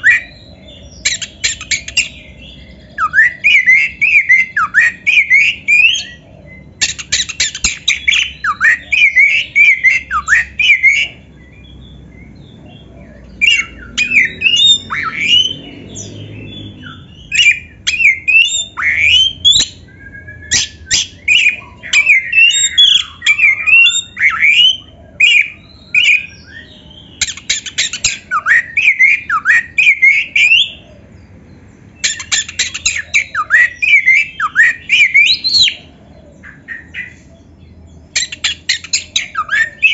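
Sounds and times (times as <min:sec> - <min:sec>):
bird singing whistles and clicks: 0:01.1 - 0:02.2, 0:06.8 - 0:11.1.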